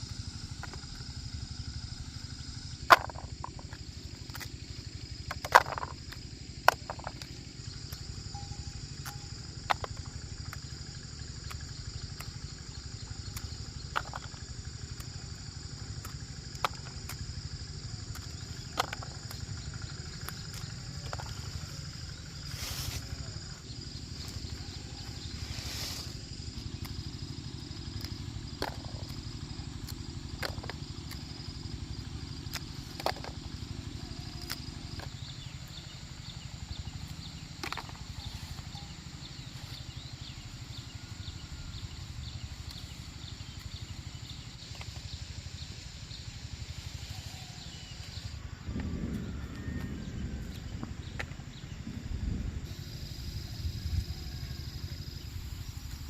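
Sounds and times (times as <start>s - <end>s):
insect drone: 0.0s - 56.0s
low rumble: 45.7s - 56.0s.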